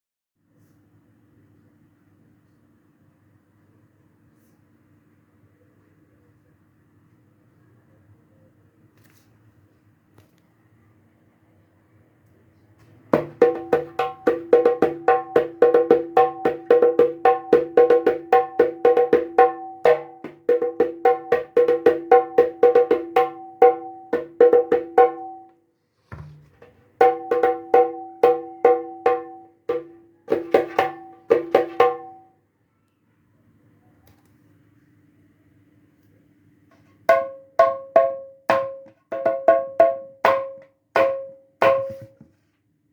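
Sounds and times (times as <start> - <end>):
hand drum played: 13.2 - 25.5, 27.0 - 32.2, 37.1 - 41.9.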